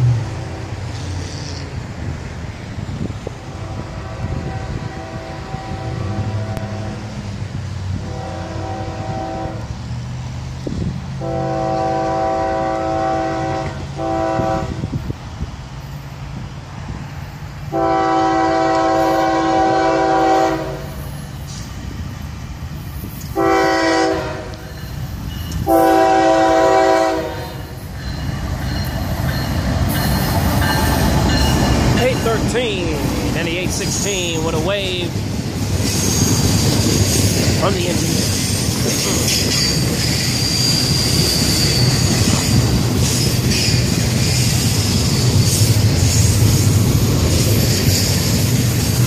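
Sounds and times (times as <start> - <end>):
locomotive air horn blasts: 3.5 - 7.2, 8.0 - 9.7, 11.2 - 14.9, 17.7 - 21.0, 23.3 - 24.8, 25.6 - 27.8.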